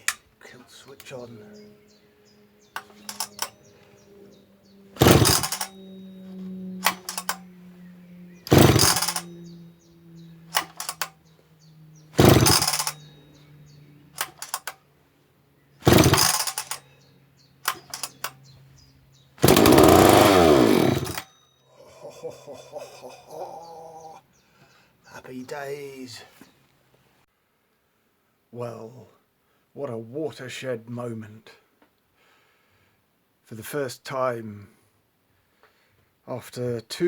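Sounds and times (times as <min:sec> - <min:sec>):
chainsaw engine firing and dying: 0:00.0 - 0:00.2, 0:02.8 - 0:04.1, 0:04.9 - 0:07.6, 0:08.3 - 0:09.6, 0:10.2 - 0:11.3, 0:12.0 - 0:13.2, 0:14.1 - 0:14.8, 0:15.8 - 0:17.0, 0:17.6 - 0:18.4, 0:19.4 - 0:21.3
chainsaw recoil starter pulls: 0:00.0 - 0:00.3, 0:02.8 - 0:03.8, 0:05.0 - 0:07.6, 0:08.4 - 0:09.5, 0:10.5 - 0:11.2, 0:12.2 - 0:13.1, 0:14.2 - 0:14.8, 0:15.8 - 0:16.9, 0:17.6 - 0:18.5, 0:19.4 - 0:21.3.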